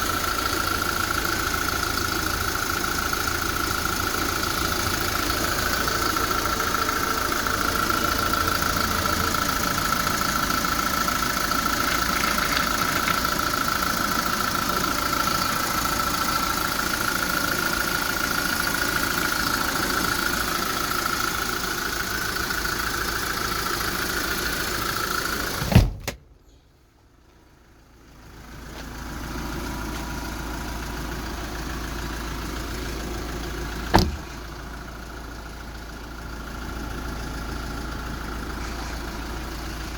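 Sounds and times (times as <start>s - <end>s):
diesel engine idling: 0.0s - 25.7s, 26.3s - 39.9s.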